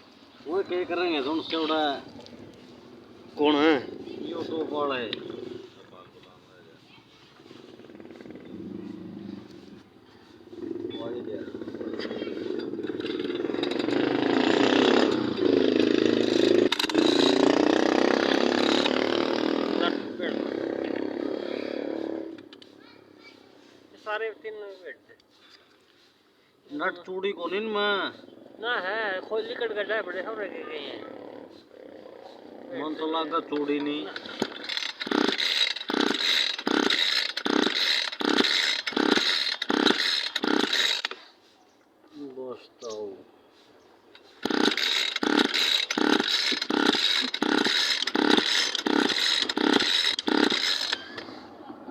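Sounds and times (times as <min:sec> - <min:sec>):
small engine running: 0:00.5 - 0:23.8, 0:30.8 - 0:41.2, 0:44.2 - 0:51.9
hand tool scraping metal: 0:32.7 - 0:41.4, 0:44.2 - 0:51.2.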